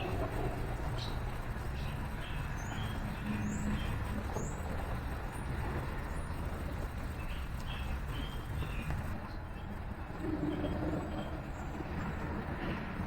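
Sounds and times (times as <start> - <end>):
city traffic rumble: 0.0 - 13.0
small birds chirping: 6.0 - 9.7.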